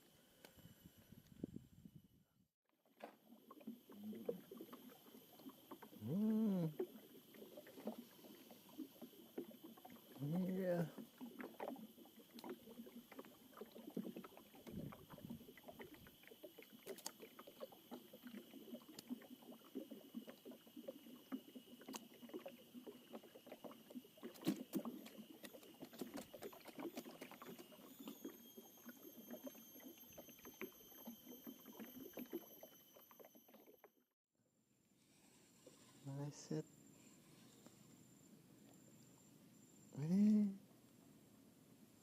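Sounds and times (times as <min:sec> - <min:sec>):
water lapping: 0:03.0 - 0:33.8.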